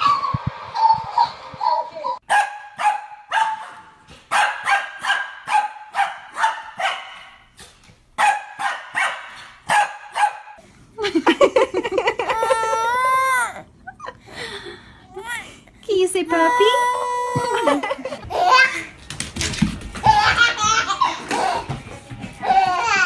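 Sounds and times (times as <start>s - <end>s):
small dog barking: 2.3s - 7.2s, 8.2s - 10.5s.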